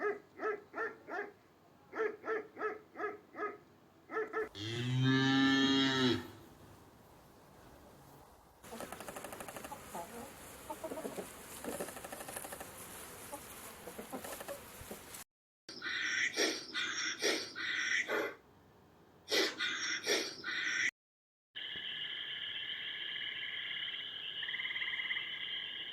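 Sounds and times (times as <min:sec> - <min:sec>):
chicken squawking: 0:19.3 - 0:20.9.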